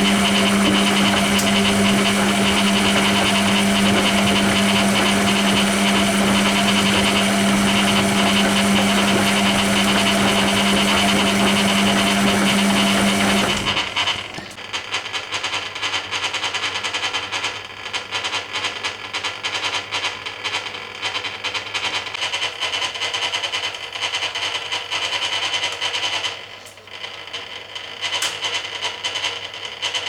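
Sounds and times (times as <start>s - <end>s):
washing machine drum rattling: 0.0s - 14.6s
water running into drum: 0.0s - 14.6s.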